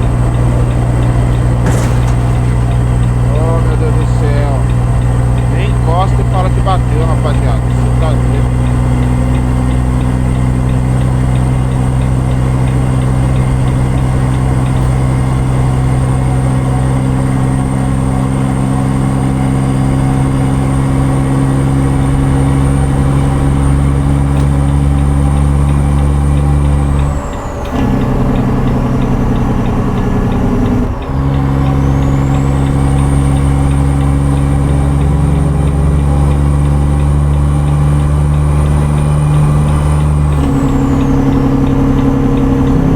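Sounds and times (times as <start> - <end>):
truck engine running: 0.0 - 42.9.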